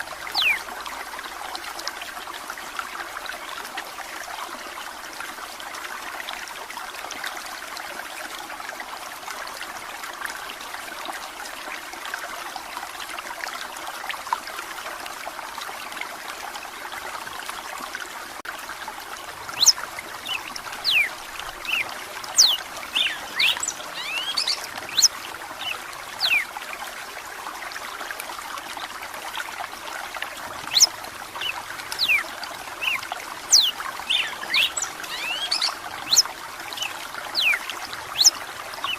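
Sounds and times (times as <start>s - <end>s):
water trickling: 0.0s - 38.9s
bird singing whistled notes: 0.3s - 0.6s, 19.6s - 21.8s, 22.4s - 26.4s, 30.7s - 32.2s, 32.8s - 36.3s, 37.4s - 37.6s.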